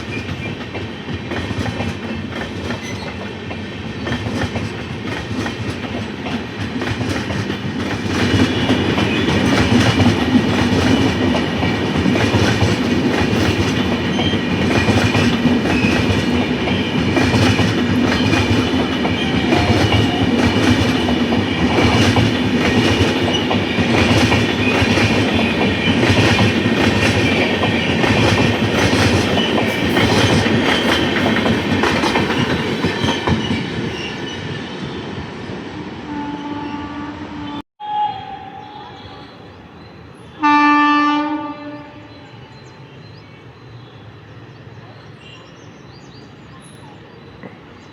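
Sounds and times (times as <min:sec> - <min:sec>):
train wheels clattering on rails: 0:00.0 - 0:35.0.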